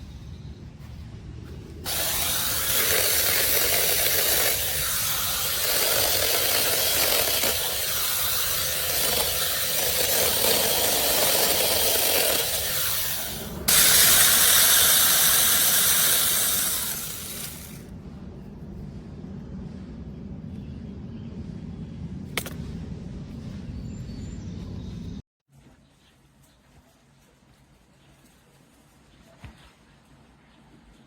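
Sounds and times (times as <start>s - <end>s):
mini chainsaw cutting wood: 1.9s - 17.8s.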